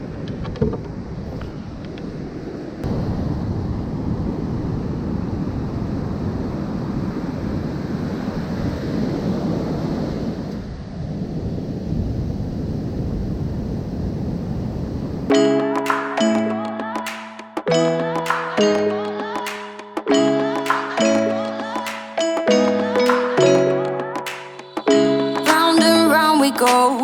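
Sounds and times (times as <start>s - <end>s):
wind buffeting microphone: 0.0s - 15.3s
ocean surf: 14.9s - 27.0s
music: 15.3s - 27.0s.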